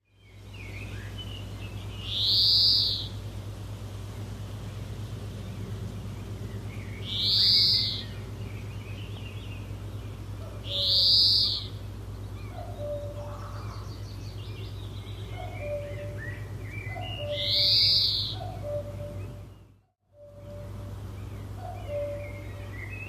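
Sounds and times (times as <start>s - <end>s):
steady low hum: 0.0s - 23.0s
loud high bird calls: 0.4s - 3.3s, 6.3s - 23.0s
soft bird chirps: 6.6s - 23.0s.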